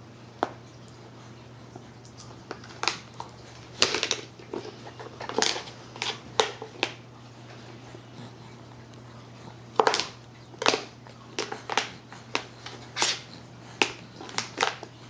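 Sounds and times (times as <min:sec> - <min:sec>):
baby slapping food: 0:09.7 - 0:15.0.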